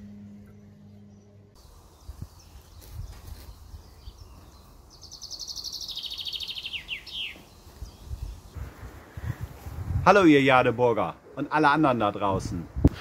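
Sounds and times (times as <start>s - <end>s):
low outdoor rumble: 0.0s - 2.1s
songbird fast trill: 0.5s - 8.4s.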